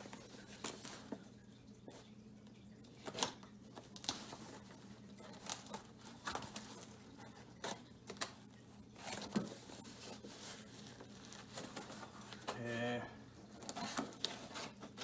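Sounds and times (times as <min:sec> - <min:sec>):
cardboard rustling and tearing: 0:13.6 - 0:15.0.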